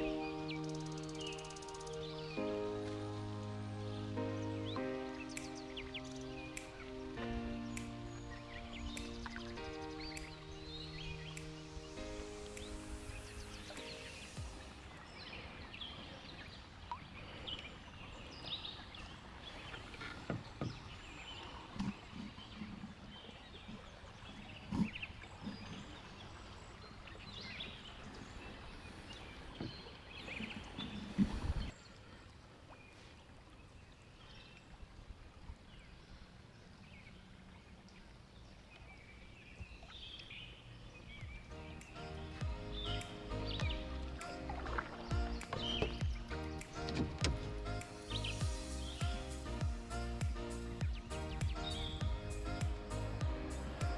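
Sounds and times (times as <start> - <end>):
bird chirps: 0.0 - 15.9, 40.1 - 53.9
faint river background: 0.0 - 53.9.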